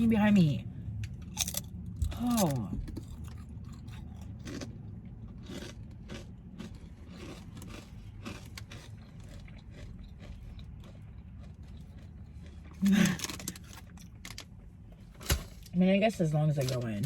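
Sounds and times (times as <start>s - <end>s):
steady low hum: 0.0s - 17.0s
person chewing food: 1.0s - 14.3s
food crunching: 1.1s - 14.6s.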